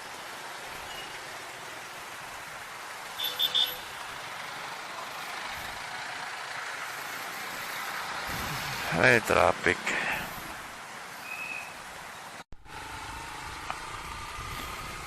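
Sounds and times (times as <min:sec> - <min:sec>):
traffic noise: 0:00.0 - 0:15.0
wind noise: 0:08.3 - 0:08.9, 0:13.8 - 0:15.0.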